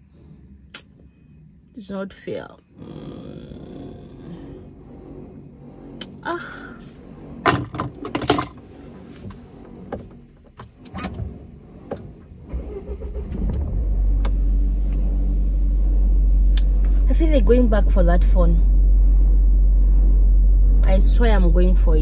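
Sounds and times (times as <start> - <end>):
car engine starting and idling: 0.0 - 22.0
clicks and rattles inside a car: 7.4 - 12.4.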